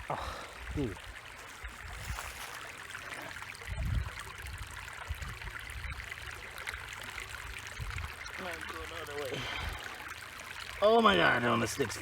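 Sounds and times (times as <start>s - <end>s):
stream trickling: 0.0s - 12.0s.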